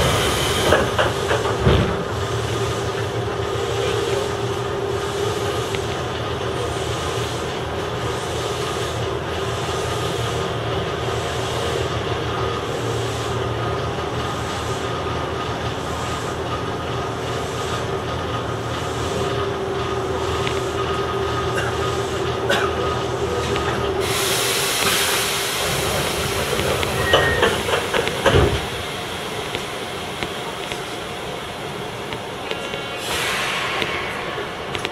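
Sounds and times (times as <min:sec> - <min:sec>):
hiss: 0:00.0 - 0:15.1, 0:23.4 - 0:34.9
electric train running: 0:00.0 - 0:34.9
wheel clicks over rail joints: 0:00.6 - 0:04.6, 0:25.8 - 0:28.8.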